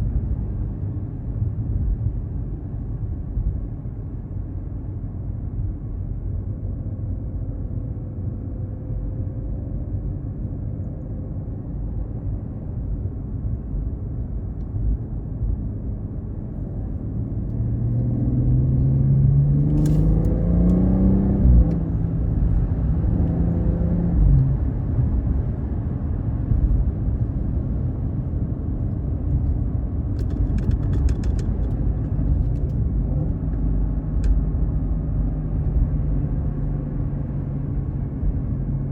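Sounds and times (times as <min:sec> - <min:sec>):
car exhaust rumble: 0:11.4 - 0:38.9.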